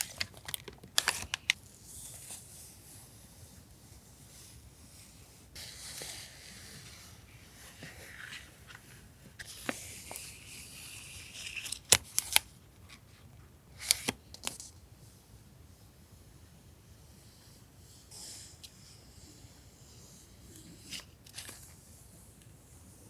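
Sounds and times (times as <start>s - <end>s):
paper rustling: 0.0s - 1.6s.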